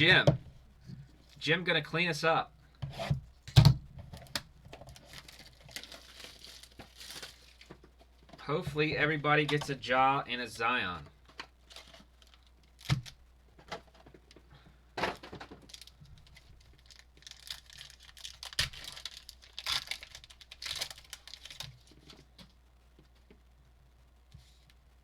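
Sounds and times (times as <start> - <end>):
plastic wrappers tearing and crinkling: 4.2 - 7.8, 11.7 - 13.2, 15.5 - 21.9.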